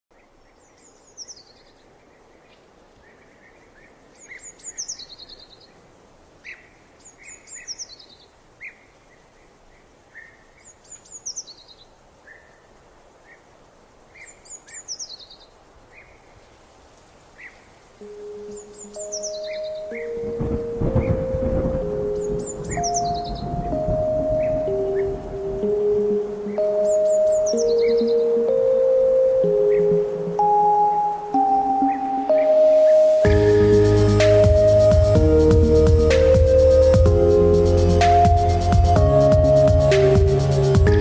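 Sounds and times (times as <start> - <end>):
soft bird chirps: 0.1 - 16.5, 17.3 - 35.0
outdoor background hiss: 0.1 - 41.0
songbird falling phrase: 18.0 - 28.8
held musical tones: 18.0 - 41.0.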